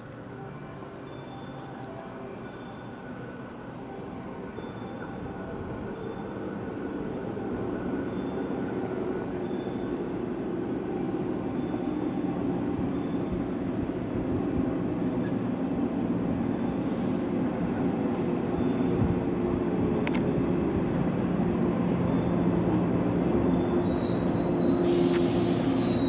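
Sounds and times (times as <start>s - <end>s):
train rumble: 3.0s - 26.0s
faint high squeal: 7.7s - 21.0s, 22.9s - 26.0s.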